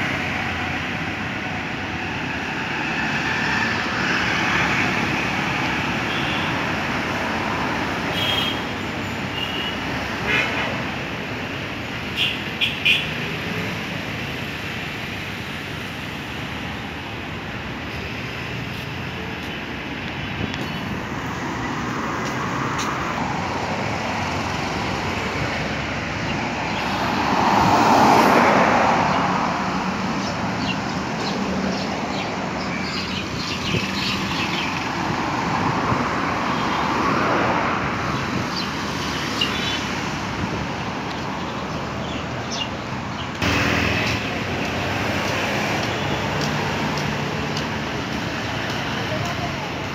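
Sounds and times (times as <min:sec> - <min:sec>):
cars passing: 0:00.0 - 0:49.9
hum of traffic: 0:00.0 - 0:49.9.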